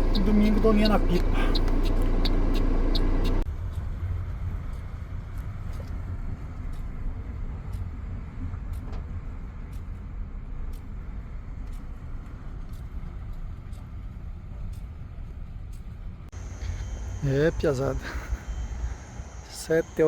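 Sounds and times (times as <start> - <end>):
faint ticking: 0.0 - 3.4.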